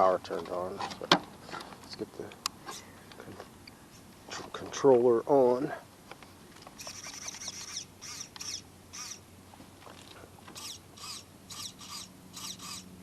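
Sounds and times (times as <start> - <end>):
small birds chirping: 6.8 - 9.2.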